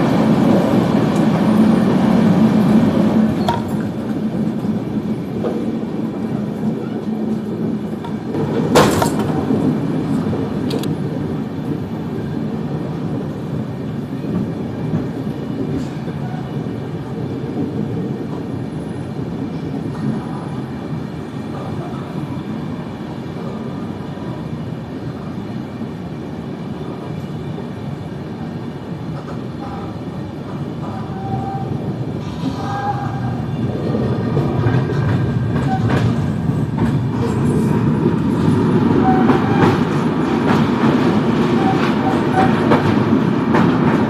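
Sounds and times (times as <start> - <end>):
train wheels rumbling on track: 0.0 - 44.0.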